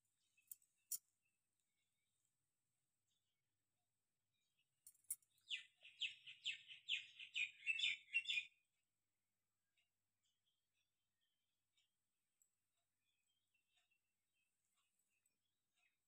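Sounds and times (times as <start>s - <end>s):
bird chirping: 4.4s - 8.6s.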